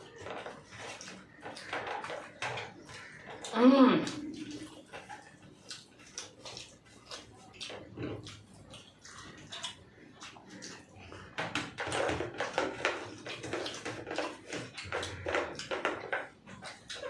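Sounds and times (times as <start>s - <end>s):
people chewing food: 0.0s - 17.0s.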